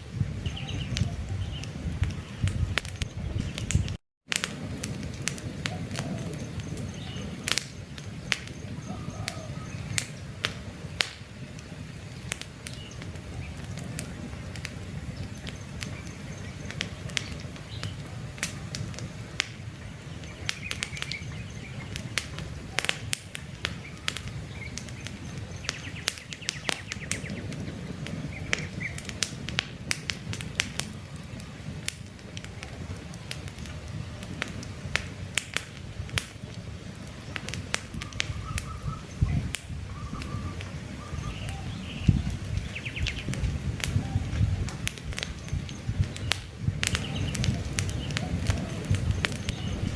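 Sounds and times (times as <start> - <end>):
campfire crackling and popping: 0.0 - 49.9
bird chirps: 0.4 - 4.0, 5.7 - 10.2, 19.8 - 23.0, 23.8 - 27.5, 38.0 - 44.5, 45.2 - 49.9.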